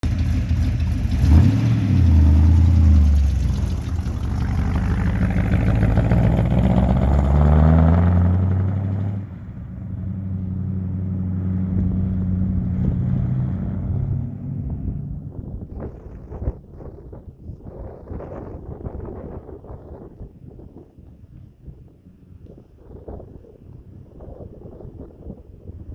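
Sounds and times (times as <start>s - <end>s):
truck engine revving: 0.0s - 16.2s.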